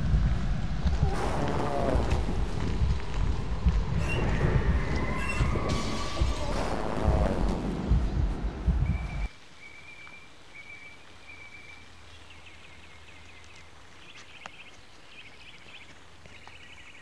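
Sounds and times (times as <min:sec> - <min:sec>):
loud rumbling noise: 0:00.0 - 0:09.3.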